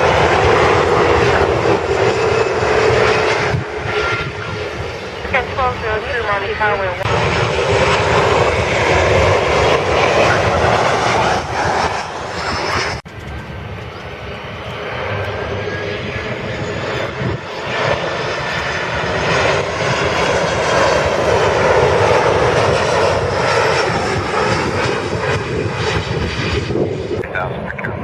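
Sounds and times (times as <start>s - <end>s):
jet engines roaring: 0.0s - 28.0s.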